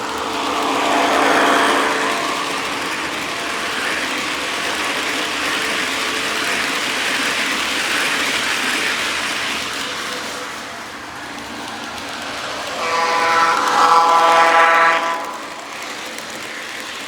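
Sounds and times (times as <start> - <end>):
model train wheels clattering: 0.0 - 17.0.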